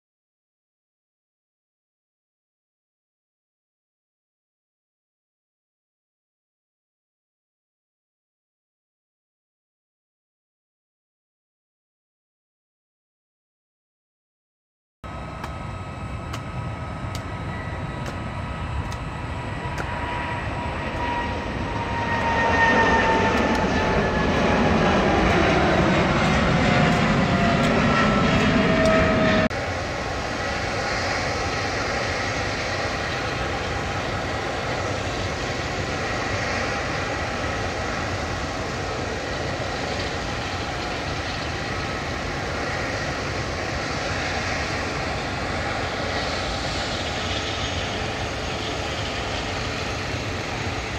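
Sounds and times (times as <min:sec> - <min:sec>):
high whine falling in pitch: 0:15.0 - 0:30.8
jet engines rumbling: 0:15.0 - 0:50.9.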